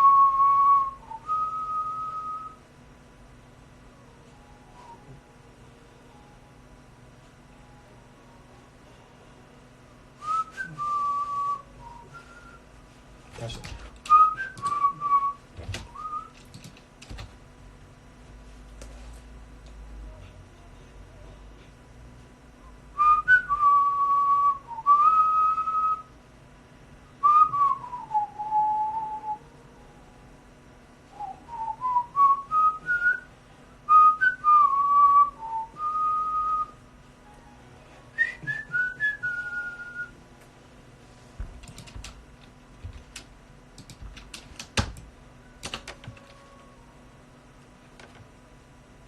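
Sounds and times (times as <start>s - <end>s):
person whistling a melody: 0.0s - 2.6s, 4.8s - 5.2s, 10.2s - 12.7s, 14.0s - 16.4s, 22.6s - 26.1s, 27.2s - 29.5s, 31.1s - 33.3s, 33.9s - 36.8s, 38.1s - 40.2s.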